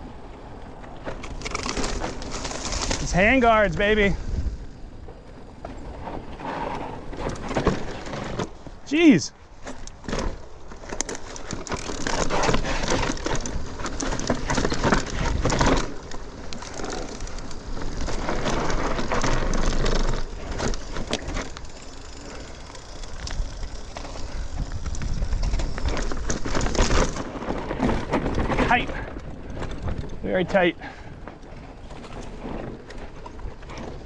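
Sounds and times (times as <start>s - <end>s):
tyres rolling over dirt and rocks: 0.0s - 34.0s
bike knocking and rattling: 0.4s - 4.1s, 5.0s - 34.0s.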